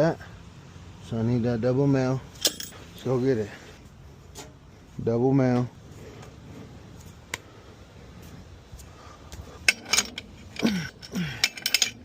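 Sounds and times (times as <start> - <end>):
metal fittings clinking together: 9.7 - 12.0.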